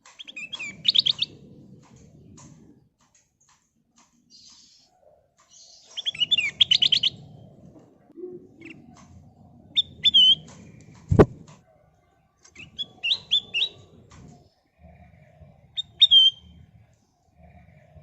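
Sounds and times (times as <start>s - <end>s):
bird chirping and whistling: 0.2s - 1.4s, 5.5s - 7.3s, 9.6s - 11.3s, 12.5s - 14.0s, 14.8s - 16.8s
low rumbling background: 13.4s - 18.0s.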